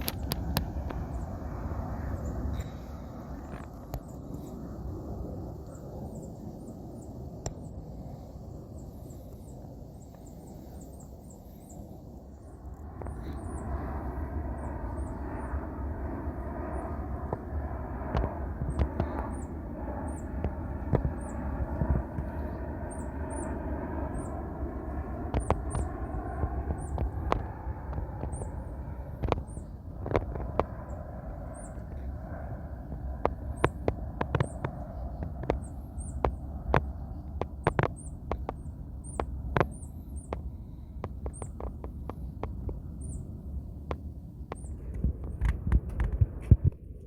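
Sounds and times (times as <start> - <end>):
jet engines rumbling and hissing: 0.0 - 47.0
small birds chirping: 5.6 - 15.6, 18.6 - 24.5, 25.2 - 32.1, 33.2 - 43.8.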